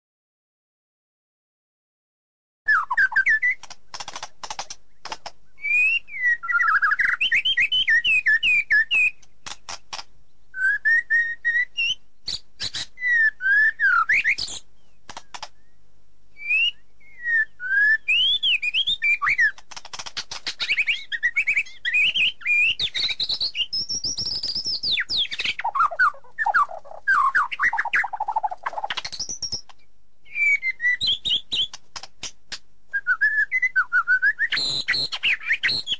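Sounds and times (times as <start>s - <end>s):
songbird singing whistled notes: 2.7s - 9.7s, 10.4s - 15.8s, 16.4s - 31.8s, 32.9s - 35.9s
sharp bird clicks: 2.8s - 10.1s, 13.9s - 15.7s, 18.6s - 32.7s, 34.5s - 35.9s.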